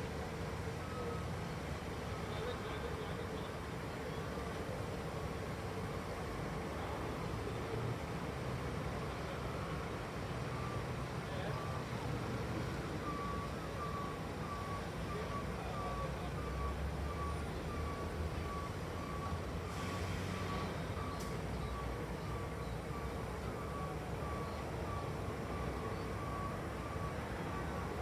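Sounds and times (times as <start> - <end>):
diesel engine running low: 0.0 - 28.0
reversing alarm beeping: 10.5 - 28.0.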